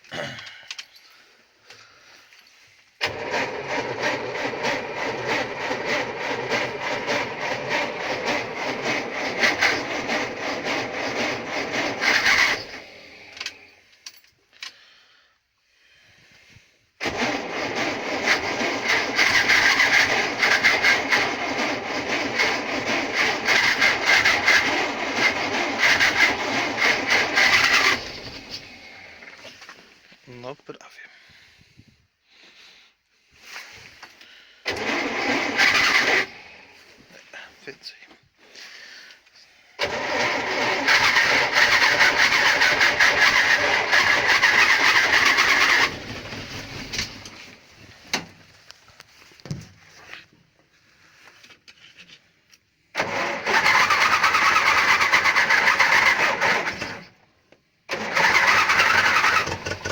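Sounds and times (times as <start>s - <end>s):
engine cranking by starter: 3.0s - 15.0s, 17.0s - 30.0s, 33.6s - 37.6s, 39.8s - 50.3s, 52.9s - 59.9s.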